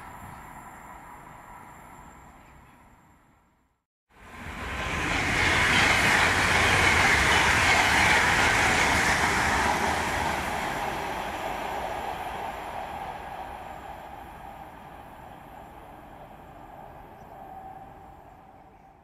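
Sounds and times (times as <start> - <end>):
train wheels rushing on rails: 4.2 - 18.9.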